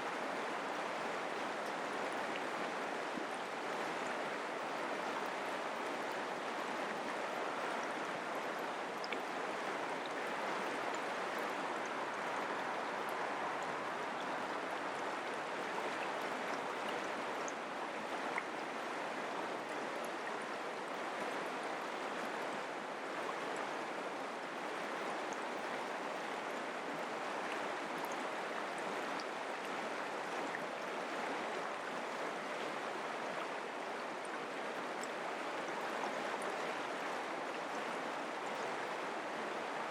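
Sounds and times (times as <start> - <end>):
creek water babbling over rocks: 0.0 - 39.9.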